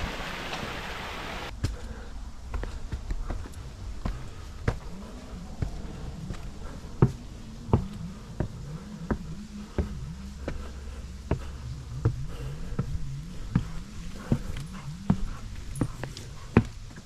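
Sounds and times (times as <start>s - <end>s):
footsteps on a hard path: 1.5s - 17.0s
low wavering buzz: 3.4s - 17.0s.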